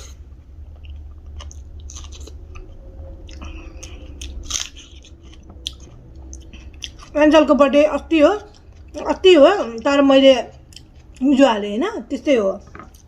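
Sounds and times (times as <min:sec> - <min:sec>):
person chewing food: 0:00.0 - 0:07.2, 0:08.4 - 0:11.2, 0:12.7 - 0:13.0
steady low hum: 0:00.0 - 0:13.0.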